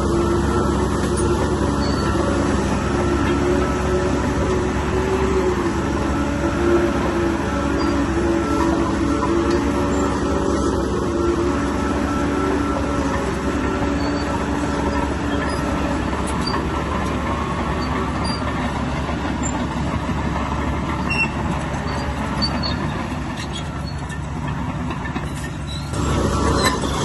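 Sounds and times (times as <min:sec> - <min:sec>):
bulldozer diesel engine rumbling: 0:00.0 - 0:27.0
metallic squeaks and clinks: 0:01.2 - 0:02.2, 0:25.2 - 0:27.0.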